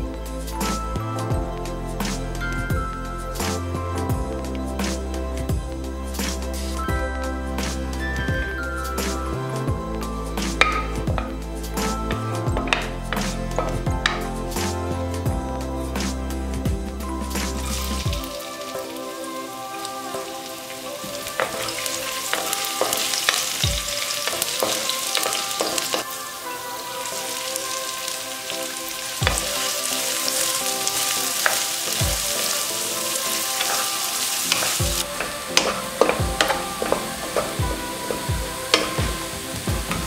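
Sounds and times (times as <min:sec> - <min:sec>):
food sizzling in hot oil: 0:17.6 - 0:40.0
wooden spatula knocking pan: 0:34.5 - 0:39.2.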